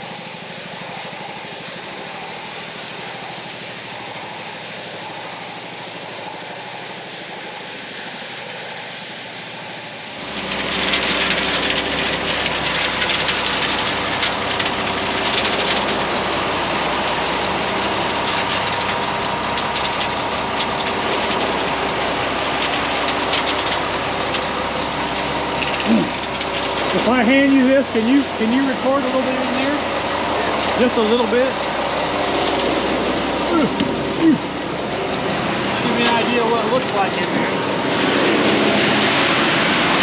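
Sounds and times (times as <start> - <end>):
engine running: 0.0 - 40.0
rattling clatter: 10.2 - 29.8.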